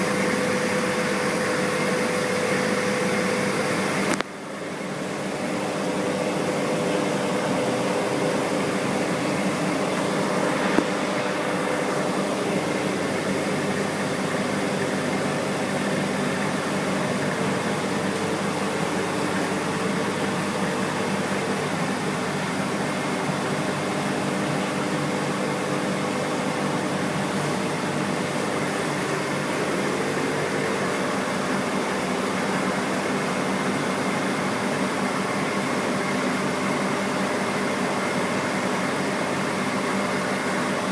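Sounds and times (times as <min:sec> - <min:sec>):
low motor hum: 0:05.0 - 0:32.8.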